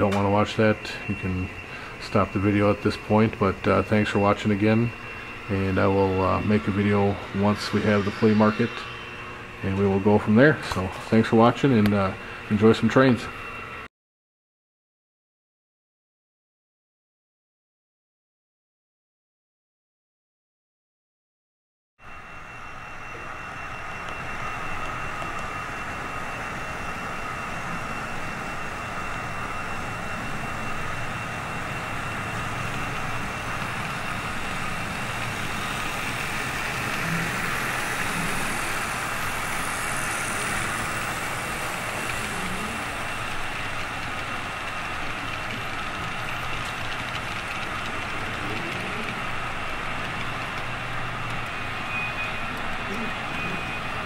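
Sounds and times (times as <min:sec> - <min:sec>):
thin whine: 0:00.0 - 0:13.9, 0:22.0 - 0:54.0
model train motor whirring: 0:24.1 - 0:54.0.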